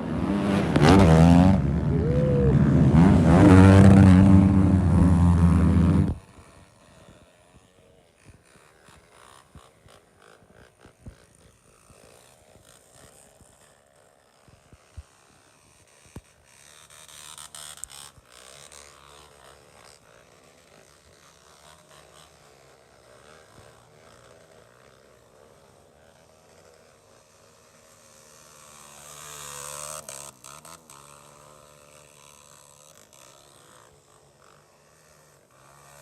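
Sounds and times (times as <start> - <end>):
distant motorcycle engines buzzing: 0.0 - 6.4.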